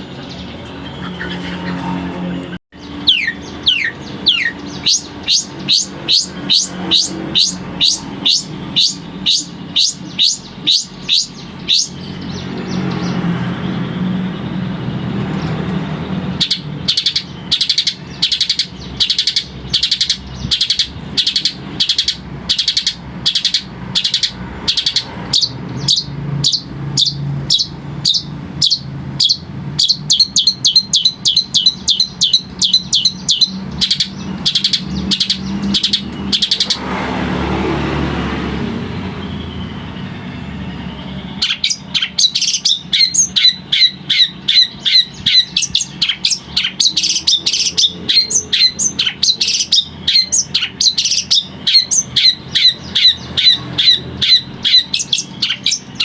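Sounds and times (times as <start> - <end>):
bird chattering calls: 0.0 - 37.4, 38.6 - 56.0
rushing noise: 34.2 - 41.3.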